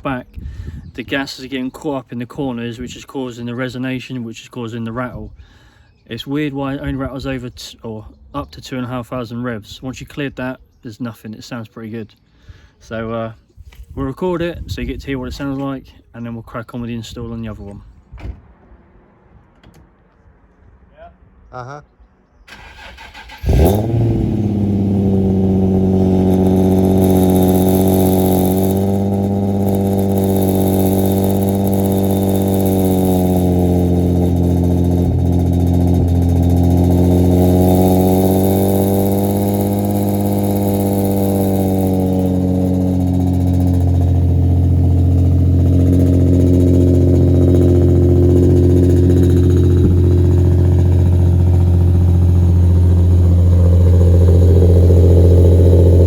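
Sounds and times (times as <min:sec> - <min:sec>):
car engine starting and idling: 0:22.5 - 0:56.0.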